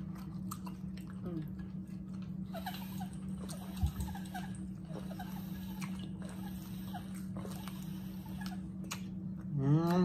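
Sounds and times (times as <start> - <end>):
person chewing: 0.0 - 2.4
steady low hum: 0.0 - 10.0
lip smacks: 7.1 - 10.0.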